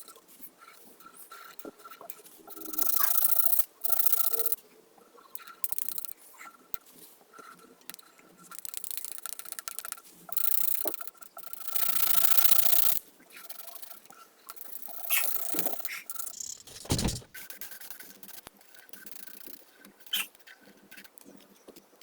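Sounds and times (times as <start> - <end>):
coloring strokes scraping paper: 16.6 - 18.5
short low thump: 16.7 - 17.3.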